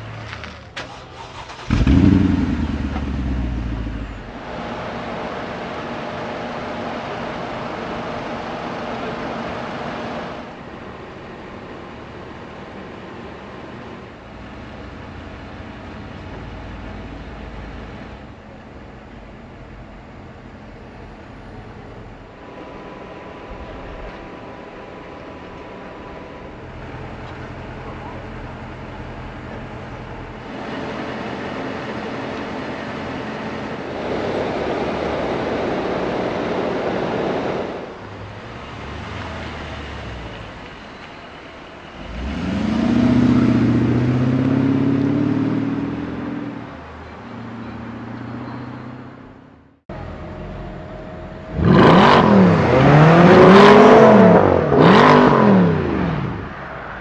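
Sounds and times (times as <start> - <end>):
car engine revving: 0.0 - 10.6, 41.9 - 57.0.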